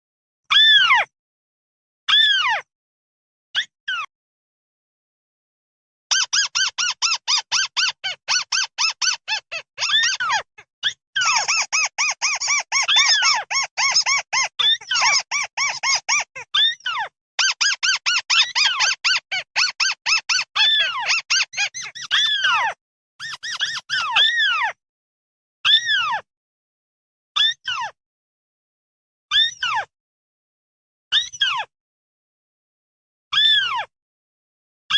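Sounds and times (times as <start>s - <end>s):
bird flock squeaky calls: 6.1s - 10.4s, 11.2s - 24.7s.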